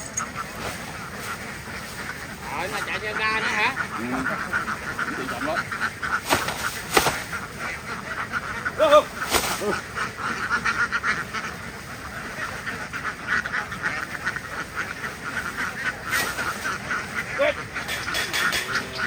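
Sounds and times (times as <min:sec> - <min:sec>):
flock of ducks quacking: 0:00.0 - 0:19.0.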